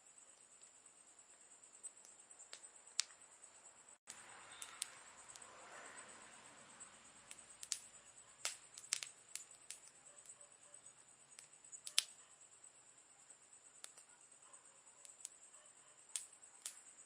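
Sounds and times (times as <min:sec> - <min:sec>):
campfire crackling and popping: 0:01.8 - 0:03.2, 0:04.1 - 0:05.5, 0:07.3 - 0:10.4, 0:11.3 - 0:12.2, 0:13.8 - 0:14.1, 0:15.0 - 0:15.4, 0:16.1 - 0:17.0.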